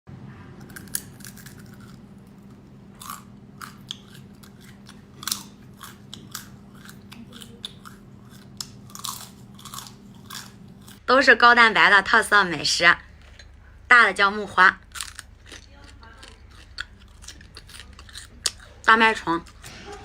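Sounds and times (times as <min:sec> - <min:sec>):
crunchy food chewing: 0:00.6 - 0:11.0, 0:14.8 - 0:20.0.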